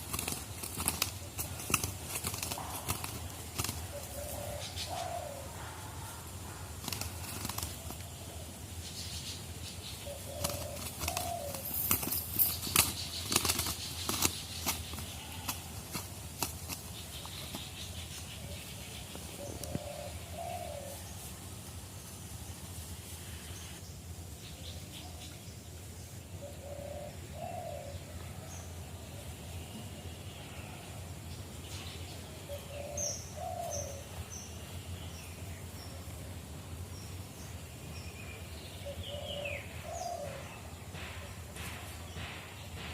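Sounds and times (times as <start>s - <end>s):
dove flapping wings: 0.0s - 4.5s, 6.8s - 8.0s, 10.3s - 17.9s
dove cooing: 0.0s - 8.5s, 10.0s - 18.6s, 19.3s - 21.2s, 26.4s - 28.5s, 32.4s - 34.2s, 38.8s - 41.7s
small birds chirping: 0.0s - 42.9s
sharp knocks and rattles: 40.9s - 42.9s.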